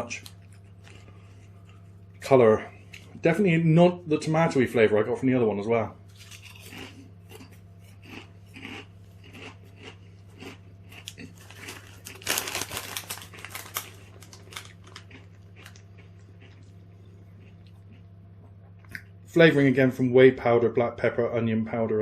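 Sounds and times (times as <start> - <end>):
chewing crunchy crisps: 0.0 - 3.2, 6.1 - 19.1
low steady hum: 0.0 - 22.0
crisp packet crinkling: 10.9 - 16.6.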